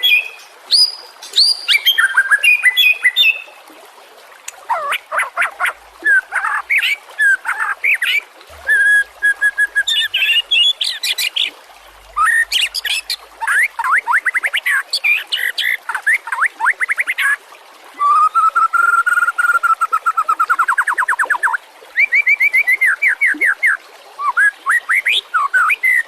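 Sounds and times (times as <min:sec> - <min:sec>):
songbird whistling varied song: 0:00.0 - 0:03.5, 0:06.1 - 0:11.5.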